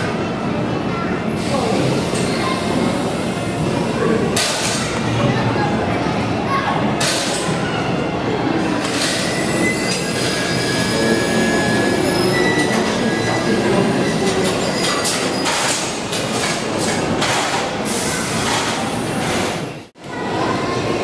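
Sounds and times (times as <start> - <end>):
train running past: 0.0 - 21.0
high wheel squeal: 8.8 - 15.8.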